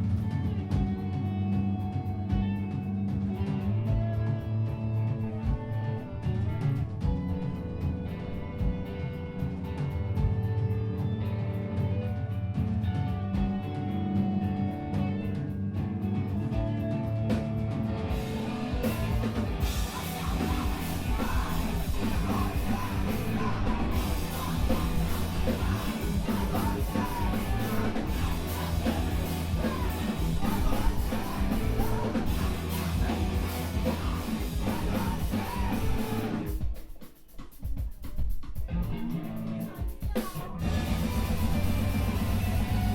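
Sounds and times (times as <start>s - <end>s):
electric guitar chords ringing: 0.0s - 36.5s
drums: 0.0s - 42.9s
screamo band playing: 12.6s - 42.9s
yelled vocals: 18.1s - 36.5s.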